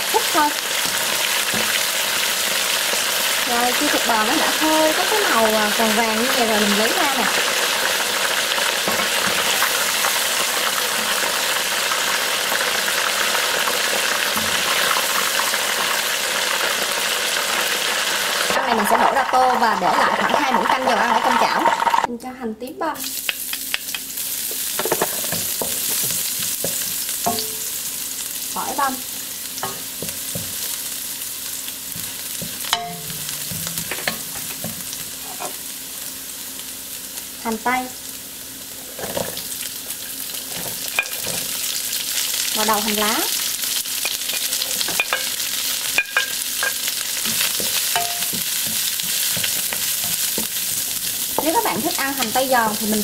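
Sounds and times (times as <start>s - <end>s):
meat sizzling in hot oil: 0.0s - 22.1s, 23.0s - 53.0s.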